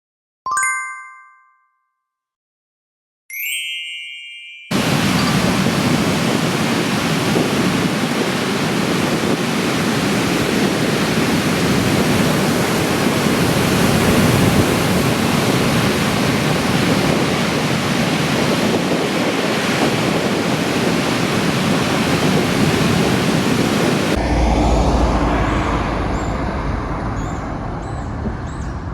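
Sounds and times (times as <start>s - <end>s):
ocean waves breaking: 4.7s - 28.6s.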